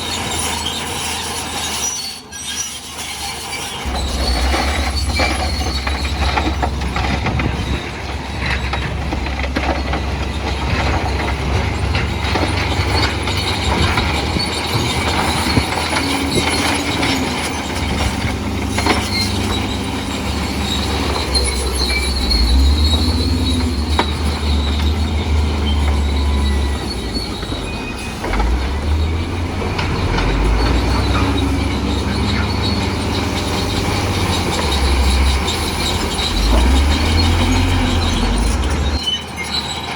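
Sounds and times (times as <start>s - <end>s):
diesel engine rumbling: 0.0s - 39.9s
steel tracks squealing and clanking: 0.0s - 39.9s.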